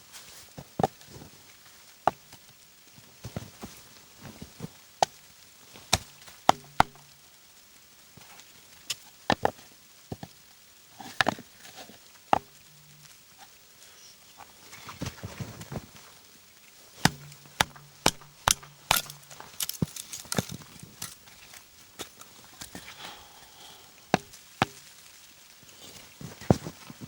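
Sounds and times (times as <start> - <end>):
hard objects knocking on wood: 17.0 - 21.2, 24.1 - 24.8.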